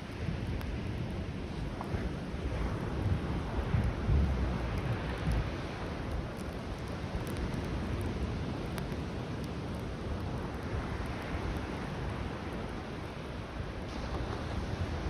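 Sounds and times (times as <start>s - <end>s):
campfire crackling: 0.0s - 15.0s
surf washing on beach: 10.7s - 15.0s.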